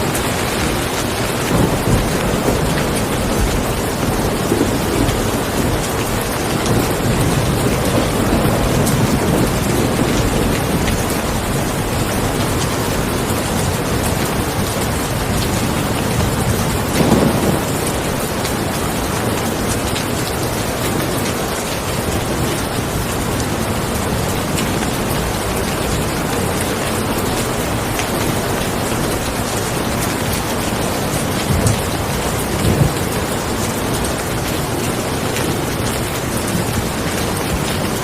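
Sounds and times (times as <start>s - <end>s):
thunder rolling: 0.0s - 19.1s
heavy rain: 0.0s - 38.0s.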